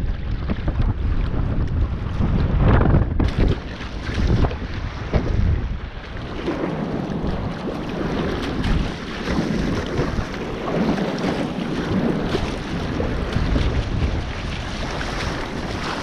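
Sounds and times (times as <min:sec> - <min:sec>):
sea water sloshing: 0:00.0 - 0:16.0
wind buffeting microphone: 0:00.0 - 0:16.0.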